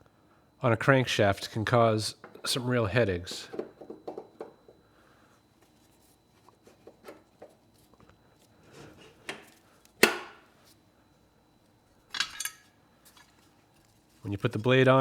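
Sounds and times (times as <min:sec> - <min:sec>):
light knocks of metal parts: 0:12.1 - 0:13.4
sharp metal clank with ring: 0:12.2 - 0:12.7.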